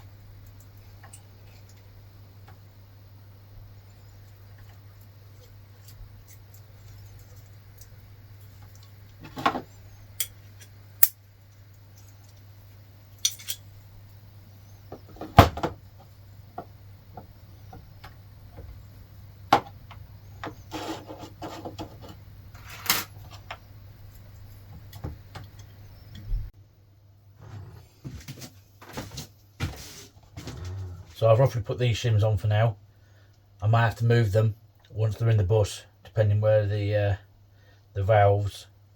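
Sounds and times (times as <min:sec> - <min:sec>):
metal parts and tools clinking: 0:10.2 - 0:11.2, 0:13.2 - 0:13.7.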